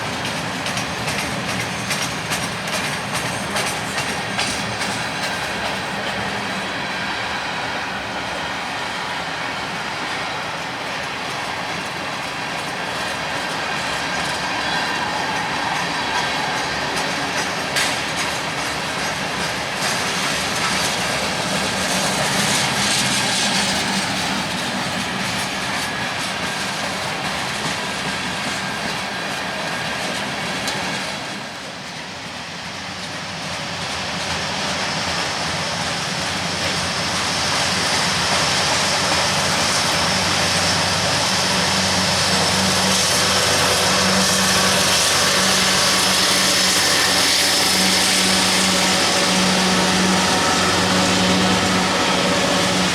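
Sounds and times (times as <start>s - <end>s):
freight train cars clattering: 0.0s - 52.9s.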